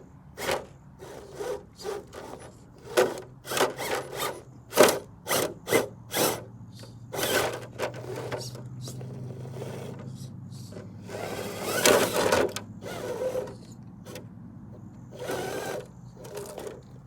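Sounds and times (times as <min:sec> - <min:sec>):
electric motor whine: 0:00.0 - 0:14.2, 0:15.1 - 0:17.0
scraping grinding bursts: 0:00.0 - 0:14.2, 0:15.1 - 0:17.0.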